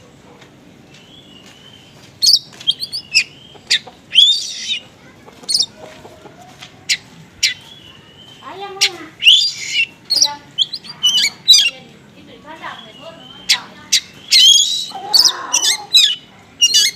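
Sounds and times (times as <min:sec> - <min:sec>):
small birds calling: 0:00.8 - 0:16.9
songbird singing varied song: 0:00.9 - 0:04.8, 0:05.5 - 0:05.8, 0:06.9 - 0:16.9
harsh rasping bird notes: 0:02.3 - 0:05.8, 0:08.4 - 0:11.8, 0:12.7 - 0:16.9.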